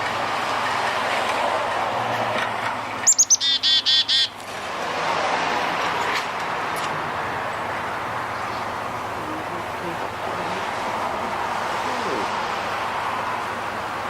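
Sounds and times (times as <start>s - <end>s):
rushing background noise: 0.0s - 14.0s
baby finch chirping: 3.0s - 4.3s.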